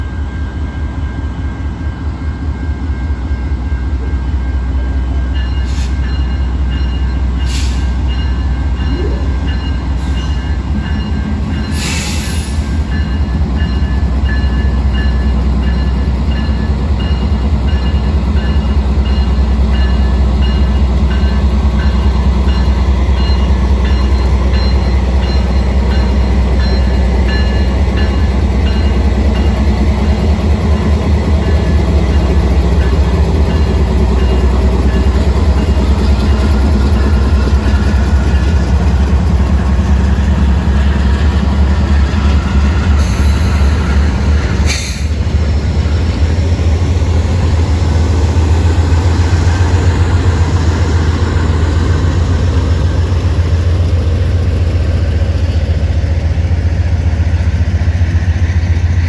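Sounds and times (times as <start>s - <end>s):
diesel locomotives rumbling: 0.0s - 59.0s
air hissing bursts: 44.6s - 45.2s.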